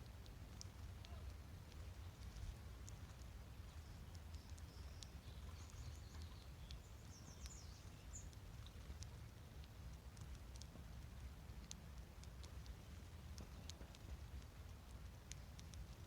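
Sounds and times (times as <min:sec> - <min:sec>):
low steady rumble: 0:00.0 - 0:16.0
faint songbird warbling: 0:03.7 - 0:08.4.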